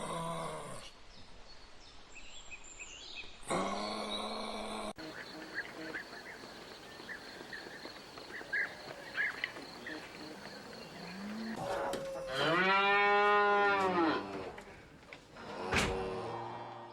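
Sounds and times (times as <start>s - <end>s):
cow mooing: 10.9s - 14.6s.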